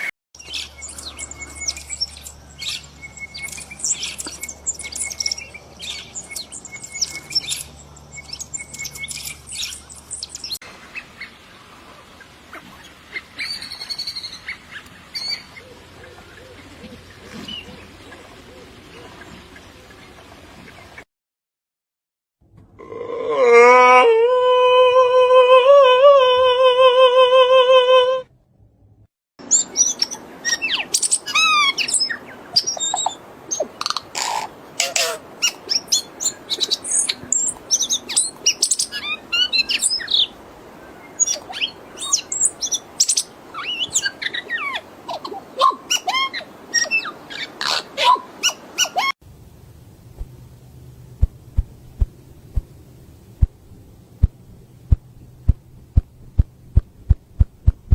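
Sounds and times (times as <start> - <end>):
birds chirping and whistling: 0.4 - 10.6, 29.5 - 40.3, 41.2 - 44.8
low hum: 49.2 - 57.9
soft regular thumps: 51.2 - 57.9.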